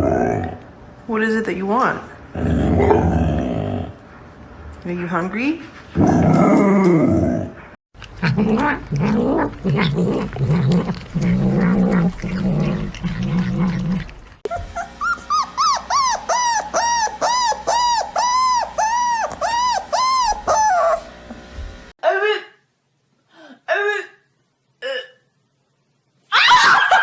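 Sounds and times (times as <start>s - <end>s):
dog growling: 0.0s - 0.7s, 2.3s - 4.0s, 5.9s - 21.0s
dog whining: 14.4s - 21.1s.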